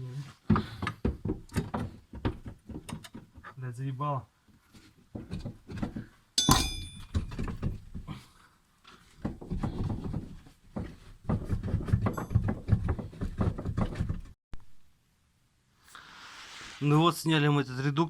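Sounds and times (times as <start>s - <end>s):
metal clanging: 6.4s - 7.4s.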